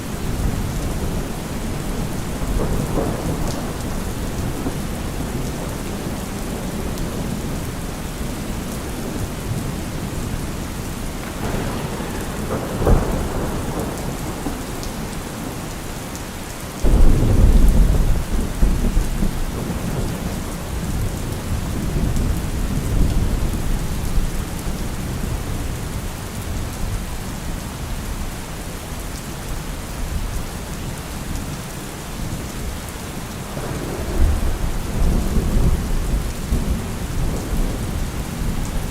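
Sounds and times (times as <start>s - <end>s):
thunder rumbling: 0.0s - 25.5s, 33.4s - 38.9s
steady rain: 0.0s - 38.9s
thunder crack: 0.2s - 7.4s, 10.5s - 16.1s, 16.8s - 23.5s, 33.5s - 38.9s.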